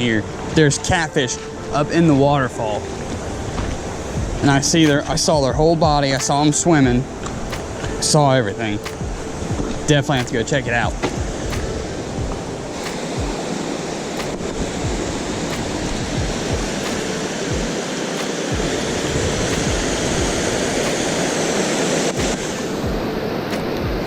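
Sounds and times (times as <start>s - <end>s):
low thumps: 3.0s - 8.0s, 8.9s - 13.6s, 14.2s - 17.8s.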